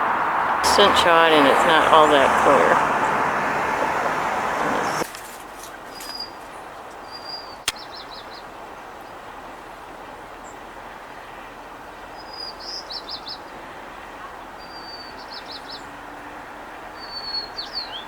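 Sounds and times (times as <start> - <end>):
outdoor background hiss: 0.0 - 12.8.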